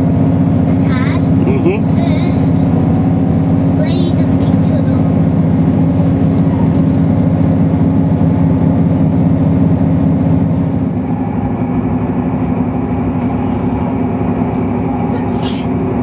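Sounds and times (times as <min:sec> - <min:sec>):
train engine drone: 0:00.0 - 0:16.0
train rumbling running noise: 0:00.0 - 0:16.0.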